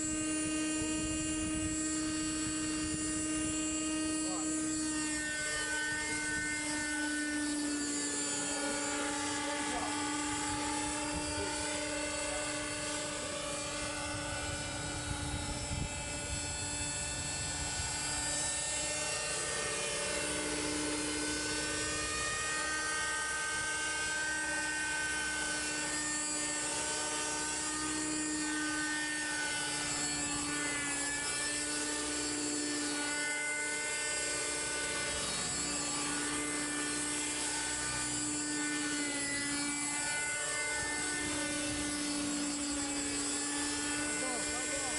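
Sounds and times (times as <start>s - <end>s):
model helicopter engine whine: 0.0s - 44.9s.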